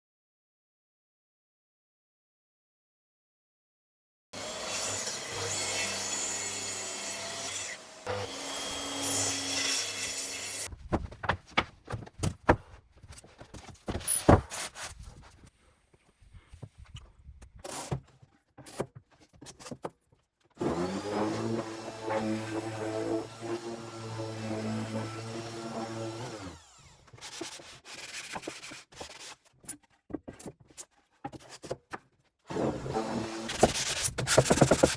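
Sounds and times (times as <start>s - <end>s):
power tool running: 4.4s - 10.7s, 20.6s - 27.1s
wooden knocks and clatters: 10.7s - 14.5s.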